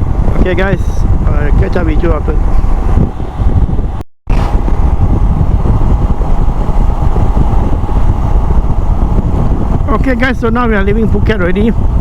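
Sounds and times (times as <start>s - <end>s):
motorcycle engine and road noise: 0.0s - 12.0s.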